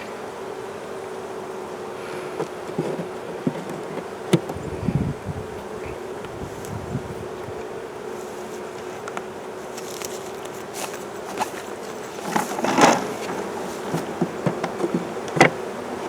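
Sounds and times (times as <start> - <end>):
honeybees buzzing: 0.0 - 16.0
knocks and clicks on hive: 2.2 - 4.7, 8.4 - 16.0.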